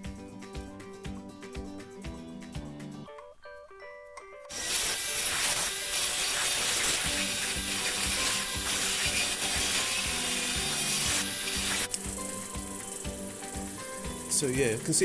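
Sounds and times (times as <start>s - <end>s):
quiet background music: 0.0s - 15.0s
hand tool rasping and ratcheting: 4.5s - 15.0s.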